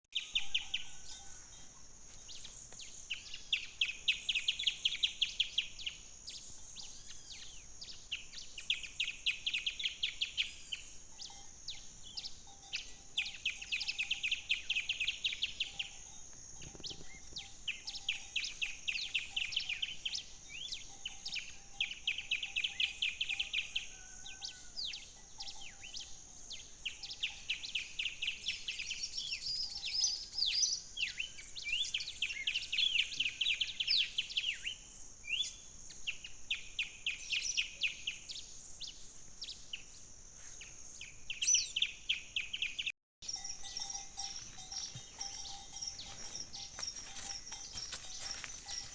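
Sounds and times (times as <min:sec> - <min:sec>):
birds chirping: 0:02.3 - 0:24.6, 0:40.6 - 0:48.9.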